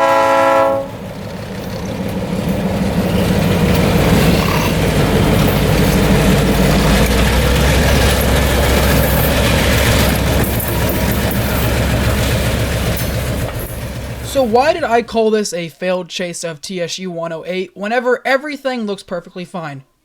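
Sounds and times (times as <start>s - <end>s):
locomotive diesel engine droning: 0.0s - 15.2s.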